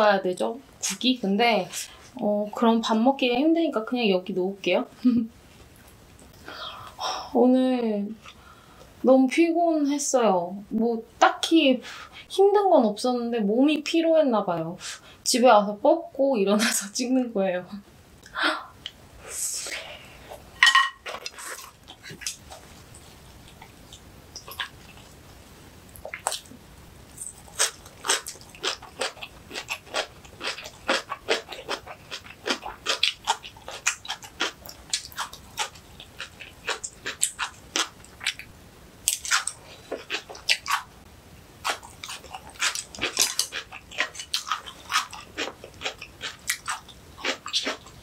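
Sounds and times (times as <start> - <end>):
crisp chewing crunches: 27.2 - 40.9, 41.6 - 48.0.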